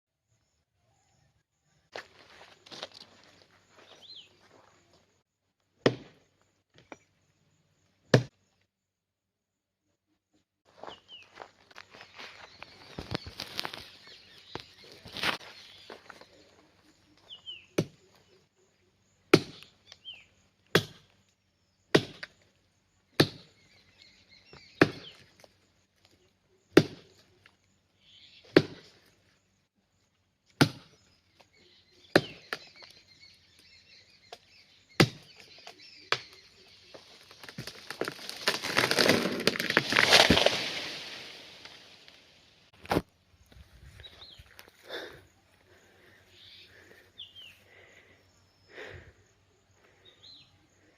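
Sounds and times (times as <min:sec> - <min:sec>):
axe chopping tree trunk: 0:05.8 - 0:06.3, 0:08.1 - 0:08.4, 0:17.8 - 0:18.0, 0:19.3 - 0:19.7, 0:20.7 - 0:21.1, 0:21.9 - 0:22.4, 0:23.2 - 0:23.6, 0:24.5 - 0:25.3, 0:26.7 - 0:27.2, 0:28.4 - 0:29.0, 0:30.5 - 0:31.1, 0:32.1 - 0:32.9, 0:34.3 - 0:36.4, 0:37.4 - 0:41.8
tree falling crash of branches: 0:37.3 - 0:42.3.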